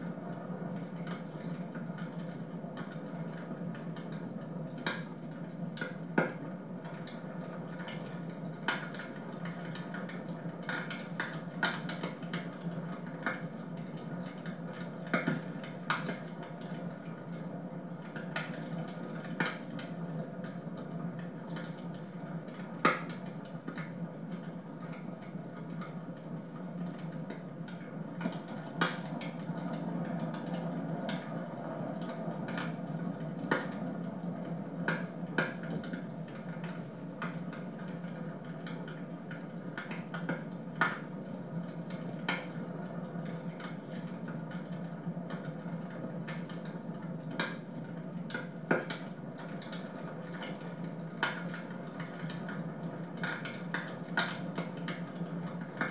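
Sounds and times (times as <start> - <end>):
wood fire crackling: 0.1 - 55.9.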